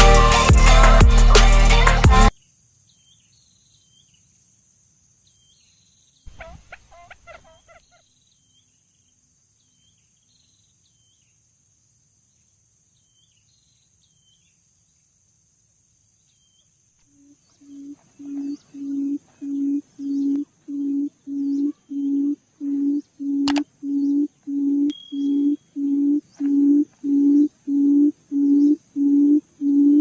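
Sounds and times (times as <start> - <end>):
bird call with falling notes: 17.6 - 27.5
faint short bird chirps: 24.9 - 26.6.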